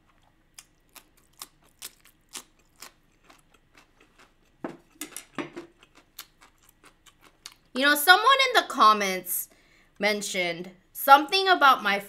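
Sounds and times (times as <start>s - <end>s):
crunchy chewing: 0.0s - 7.7s.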